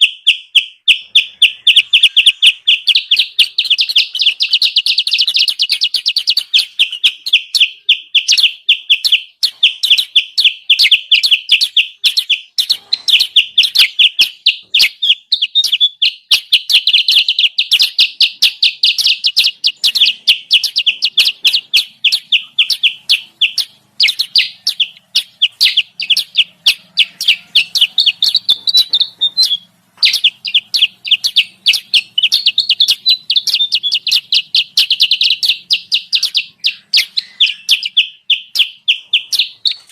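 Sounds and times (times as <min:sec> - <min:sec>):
bird chattering high chirps: 0:00.0 - 0:39.9.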